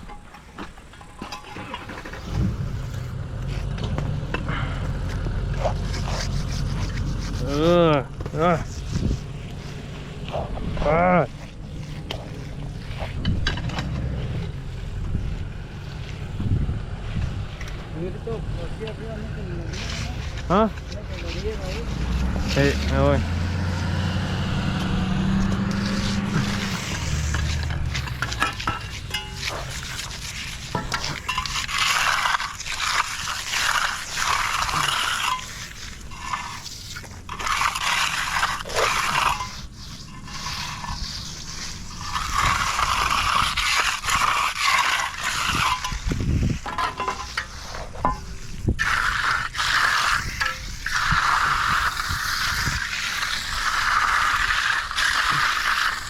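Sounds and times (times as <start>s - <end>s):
tools scraping wet concrete: 0.0s - 56.0s
tool clinks and knocks: 46.7s - 47.5s.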